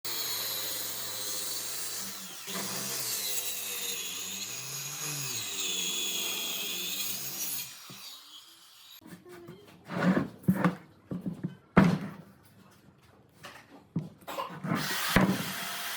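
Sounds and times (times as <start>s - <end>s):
power tool cutting wood: 0.1s - 9.0s, 14.7s - 15.9s.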